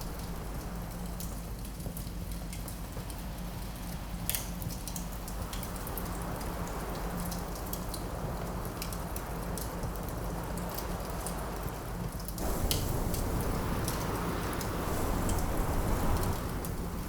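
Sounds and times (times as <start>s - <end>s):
wind rushing: 0.0s - 1.2s, 12.4s - 17.0s
wood fire crackling: 0.0s - 1.9s, 12.3s - 17.0s.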